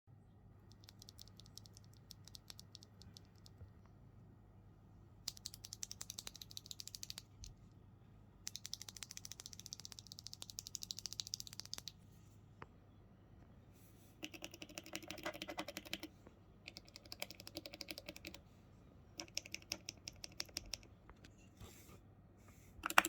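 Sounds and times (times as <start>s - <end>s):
mechanical keyboard typing: 0.7s - 3.6s, 5.3s - 7.5s, 8.5s - 11.9s, 14.2s - 16.1s, 16.7s - 18.4s, 19.2s - 21.0s.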